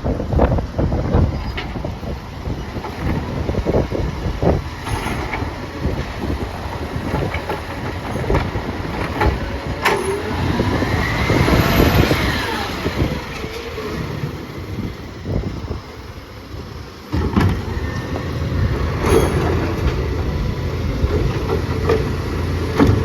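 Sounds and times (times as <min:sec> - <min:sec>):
garbage truck engine running: 0:00.0 - 0:23.0
knocks and clatter: 0:02.8 - 0:10.8, 0:18.8 - 0:20.3, 0:21.0 - 0:23.0
hydraulic whine rising and falling: 0:08.1 - 0:16.1.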